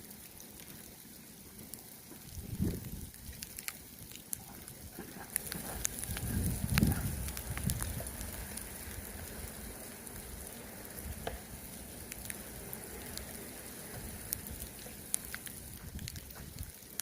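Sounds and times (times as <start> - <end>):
small clicks: 3.2 - 4.4
snow crunching and scraping: 5.0 - 16.8
low rumble: 5.3 - 16.7.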